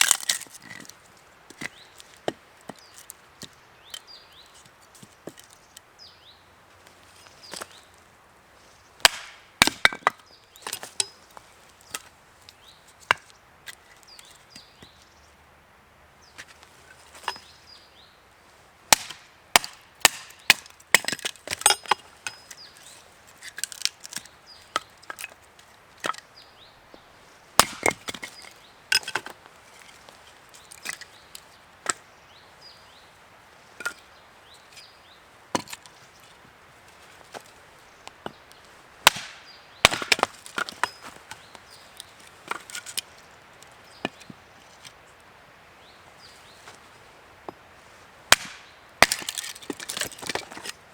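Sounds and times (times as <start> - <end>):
wood splintering: 9.0 - 10.9, 18.9 - 22.5, 27.6 - 29.4, 39.0 - 41.1, 48.3 - 50.7
axe chopping wood: 9.0 - 11.1, 18.9 - 22.4, 27.6 - 29.4, 39.0 - 41.2, 48.3 - 50.7.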